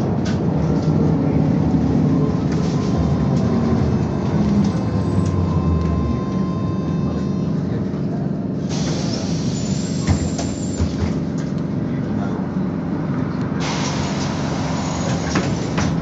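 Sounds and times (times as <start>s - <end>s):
trolleybus running rumble: 0.0s - 16.0s
pneumatic air hiss: 8.7s - 10.8s, 13.6s - 15.9s.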